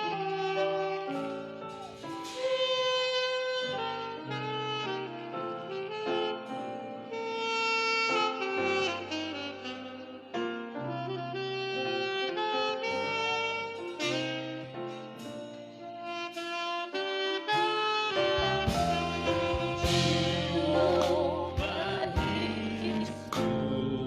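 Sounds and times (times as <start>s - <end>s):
saxophone melody: 0.0s - 24.0s
soft accompaniment: 0.0s - 24.0s
bass line: 18.2s - 24.0s.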